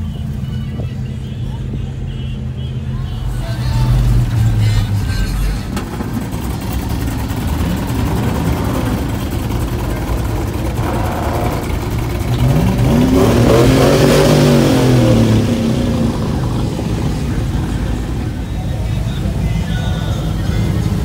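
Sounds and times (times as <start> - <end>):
engines running: 0.0 - 21.0
vehicle engine revving: 0.0 - 21.0.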